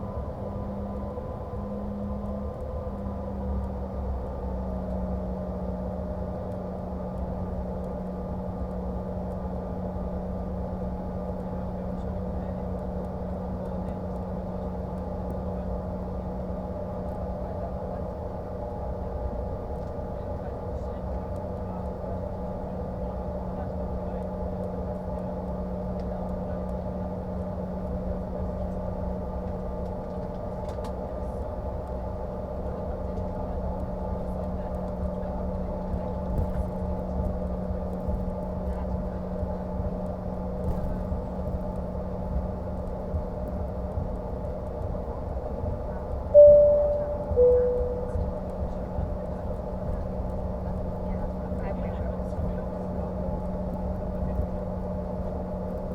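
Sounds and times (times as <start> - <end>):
jet cabin rumble: 46.4 - 48.3.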